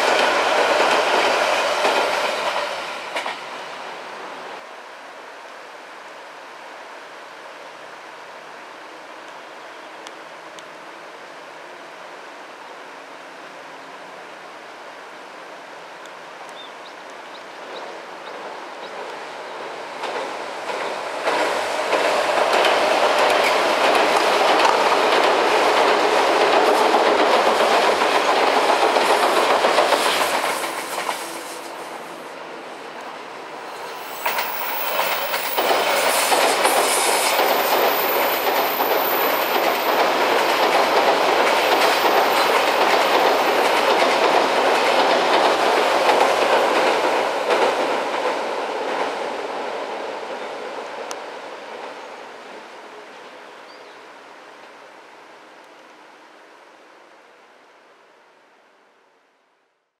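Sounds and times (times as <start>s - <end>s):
train wheels clacking on rails: 0.0s - 3.6s, 18.3s - 32.2s, 33.7s - 49.5s.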